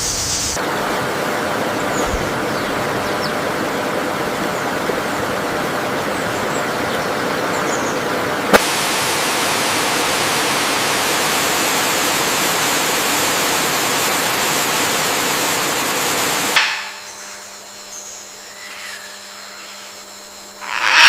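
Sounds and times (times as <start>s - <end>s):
falling water hiss: 0.0s - 0.6s, 8.6s - 16.6s
forest background: 0.0s - 21.0s.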